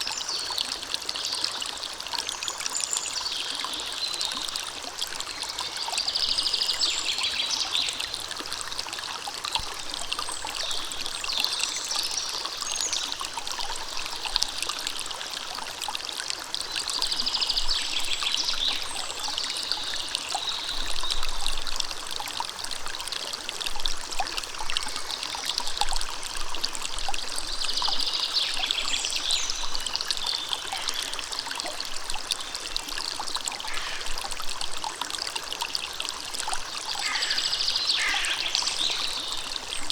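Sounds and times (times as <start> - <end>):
high bird phrases: 37.0 - 39.1.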